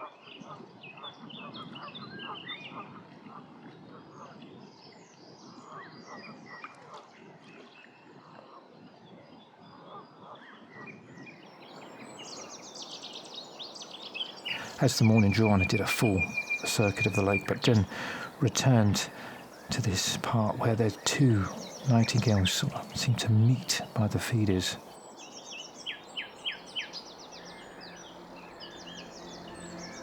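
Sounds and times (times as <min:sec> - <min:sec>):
songbirds singing: 0:10.5 - 0:30.0
low background noise: 0:11.6 - 0:30.0
high repeated bird notes: 0:14.5 - 0:24.9.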